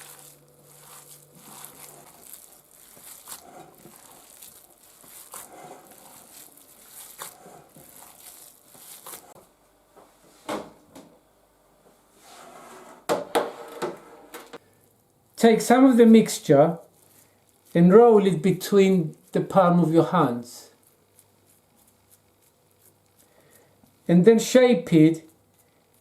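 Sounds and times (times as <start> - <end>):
hands squelching meat mixture: 0.0 - 9.4, 16.9 - 26.0.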